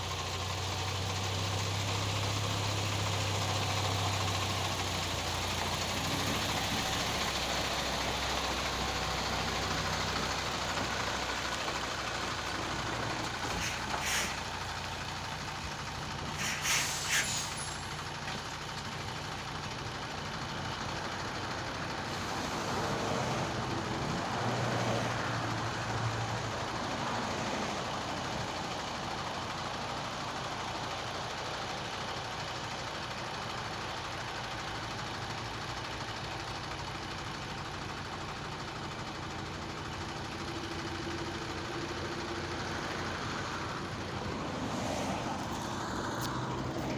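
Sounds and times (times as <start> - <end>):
truck engine idling: 0.0 - 46.9
short bursts of hissing: 13.5 - 14.6, 16.3 - 18.0.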